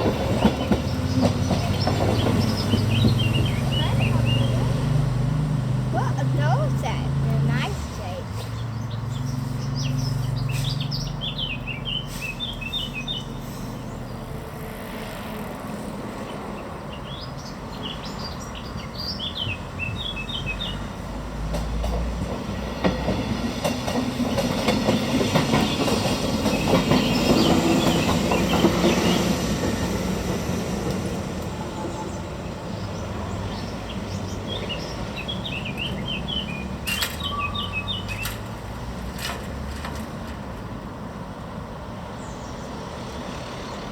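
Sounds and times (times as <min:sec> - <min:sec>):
train wheels clattering over rails: 0:00.0 - 0:05.5, 0:18.2 - 0:41.4
birds chirping: 0:00.0 - 0:14.4, 0:16.2 - 0:21.2, 0:24.1 - 0:30.4, 0:31.5 - 0:39.3.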